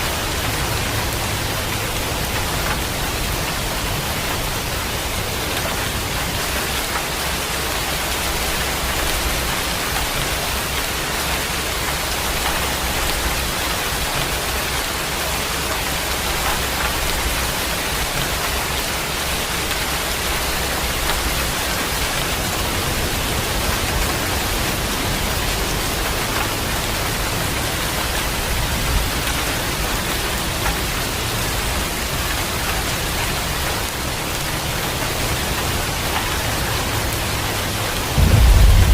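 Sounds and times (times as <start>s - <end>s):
heavy rain falling: 0.0s - 38.9s
faint low rumble: 38.2s - 38.9s.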